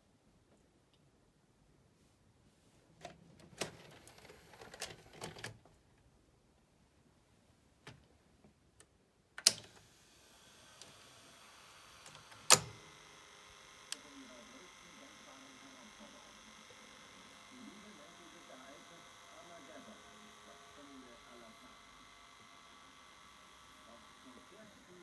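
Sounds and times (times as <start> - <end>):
tape transport clicks: 3.0 - 5.6, 8.8 - 25.0
tape drive whirring: 3.0 - 5.7, 8.8 - 25.0.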